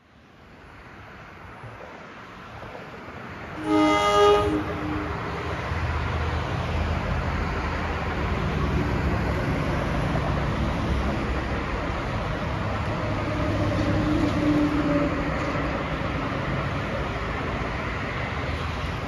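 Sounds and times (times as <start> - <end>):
train rumble: 0.1 - 19.0
train horn blast: 3.6 - 5.5.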